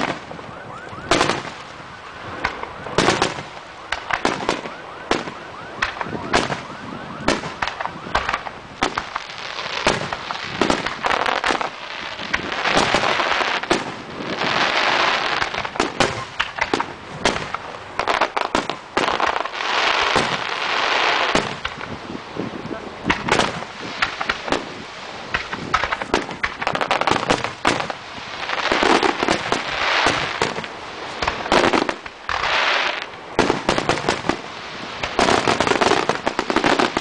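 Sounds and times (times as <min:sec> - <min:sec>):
fireworks crackling: 0:00.0 - 0:37.0
firework shells bursting with bangs: 0:02.3 - 0:22.0, 0:23.0 - 0:37.0.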